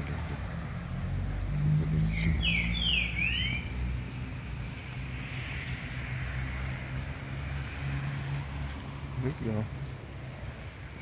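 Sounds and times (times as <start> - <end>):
faint high bird chirps: 2.0 - 4.2.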